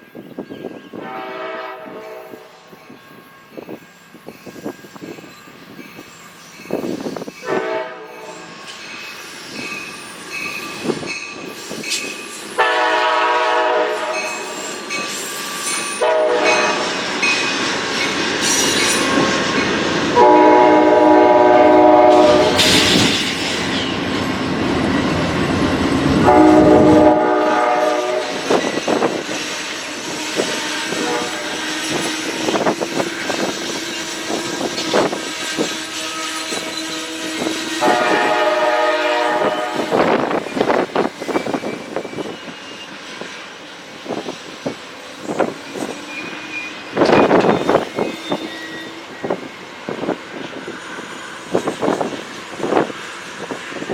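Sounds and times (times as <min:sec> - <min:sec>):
train rumble: 0:00.0 - 0:53.9
locomotive air horn blasts: 0:01.0 - 0:02.5, 0:07.4 - 0:08.4, 0:12.6 - 0:14.5, 0:16.0 - 0:16.9, 0:20.2 - 0:22.9, 0:26.2 - 0:28.6, 0:30.0 - 0:32.0, 0:35.6 - 0:40.3.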